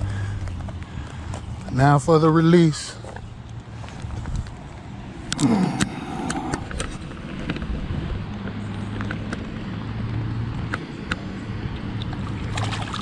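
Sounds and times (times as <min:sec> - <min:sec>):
low motor hum: 0:02.9 - 0:13.0.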